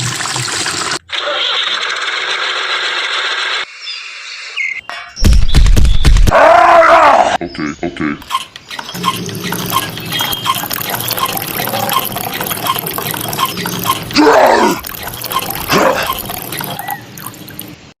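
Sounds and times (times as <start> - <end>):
hand pump beat: 8.3 - 17.4
water running and dripping: 9.0 - 17.9.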